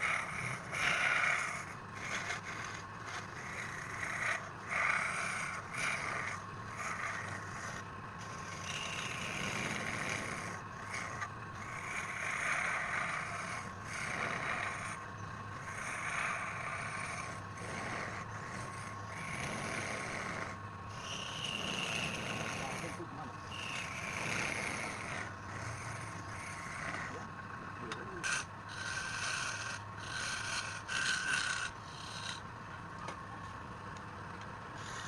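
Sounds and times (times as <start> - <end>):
spinning wood being scraped: 0.0 - 35.0
wood lathe whining: 0.0 - 35.0.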